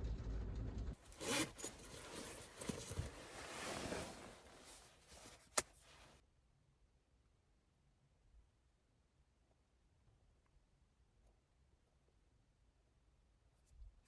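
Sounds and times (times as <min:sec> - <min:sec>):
handling rustling and knocks: 0:01.0 - 0:06.2.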